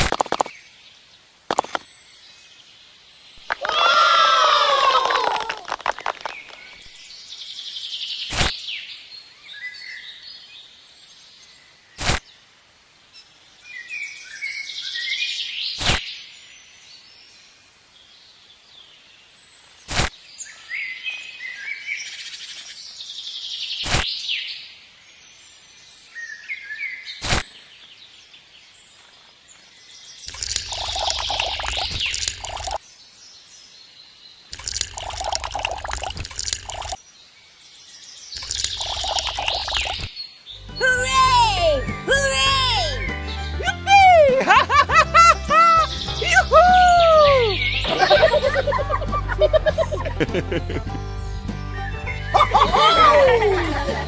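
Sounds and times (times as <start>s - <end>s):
birds chirping and calling: 38.3s - 54.0s.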